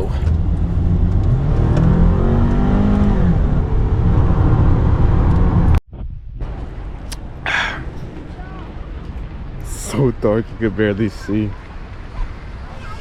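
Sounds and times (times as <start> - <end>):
car engine accelerating: 0.0 - 5.8
road rumble inside car: 0.0 - 13.0.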